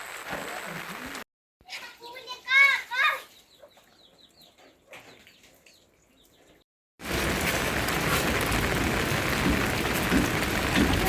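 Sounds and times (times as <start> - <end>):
heavy rain falling: 0.0 - 1.2, 7.0 - 11.0.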